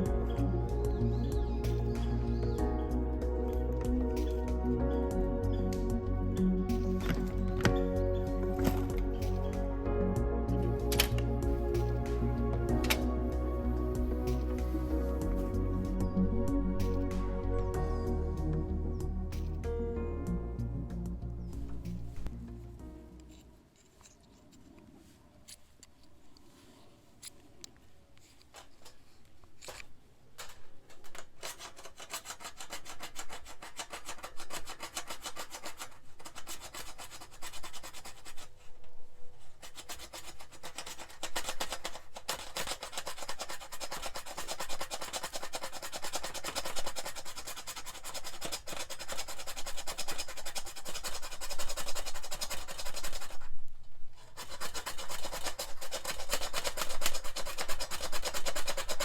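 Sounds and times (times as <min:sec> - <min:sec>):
rapid scraping strokes: 0:06.7 - 0:09.8, 0:10.4 - 0:18.0, 0:28.2 - 0:53.6, 0:54.2 - 0:59.0.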